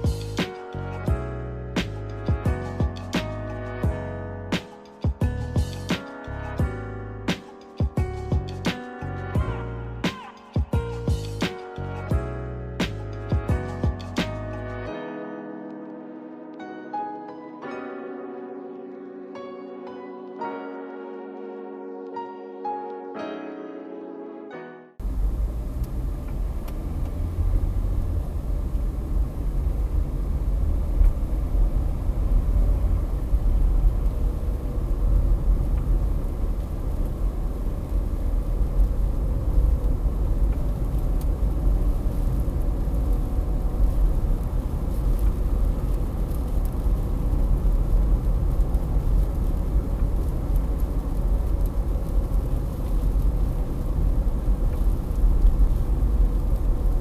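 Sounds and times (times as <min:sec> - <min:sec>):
car road and engine rumble: 0:00.0 - 0:10.0, 0:25.0 - 0:57.0.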